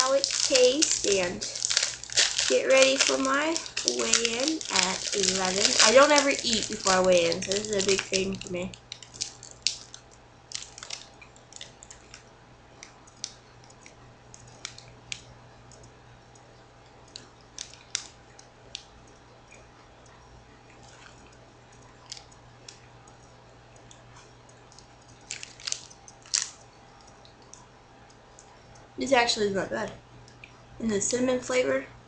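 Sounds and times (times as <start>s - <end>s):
foil wrapper crinkling: 0.0s - 12.2s, 17.2s - 18.2s, 24.7s - 26.6s
person chewing crunchy bar: 0.0s - 12.2s, 20.7s - 22.8s, 24.1s - 27.4s
faint low hum: 0.0s - 32.0s.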